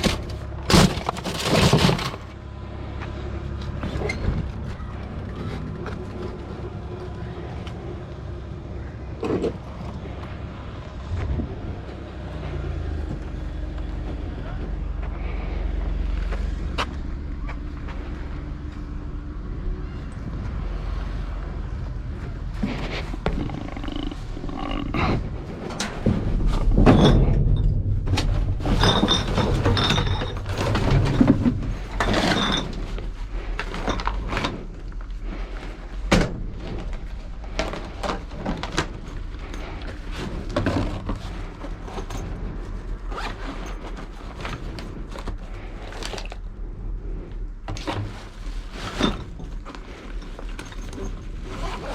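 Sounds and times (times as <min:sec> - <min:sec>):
rustling: 0:00.0 - 0:02.4, 0:28.2 - 0:51.9
steady low hum: 0:00.0 - 0:51.9.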